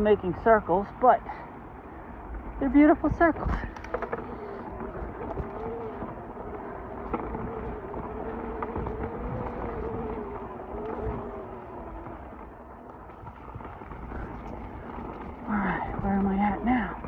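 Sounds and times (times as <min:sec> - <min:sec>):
bike tyre and drivetrain noise: 0:00.0 - 0:17.0
wavering hum: 0:00.0 - 0:17.0
bike knocks and rattles: 0:03.2 - 0:17.0.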